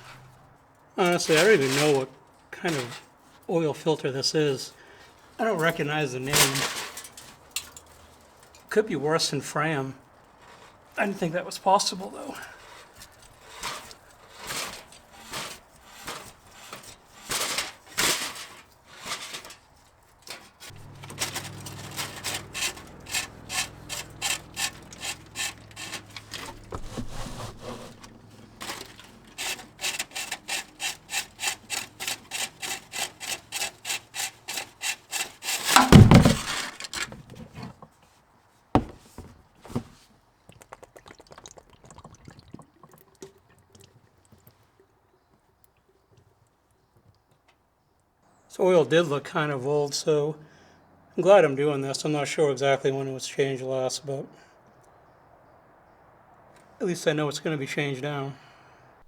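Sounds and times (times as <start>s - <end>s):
loud clatter: 20.7s - 31.1s, 35.6s - 37.1s.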